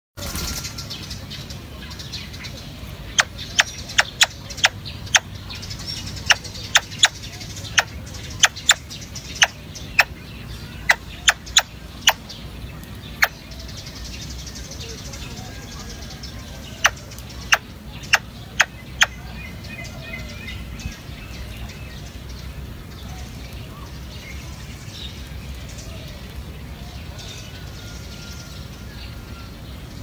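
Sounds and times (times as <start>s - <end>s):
bird call notes: 3.0s - 12.3s, 14.8s - 21.8s.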